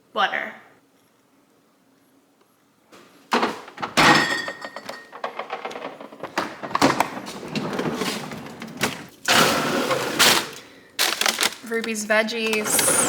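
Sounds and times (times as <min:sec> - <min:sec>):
freezer drawer sliding thunk: 0:03.3 - 0:04.6, 0:05.2 - 0:11.5
knocks and clatter: 0:03.3 - 0:09.1
frozen packages rustling: 0:04.9 - 0:13.0.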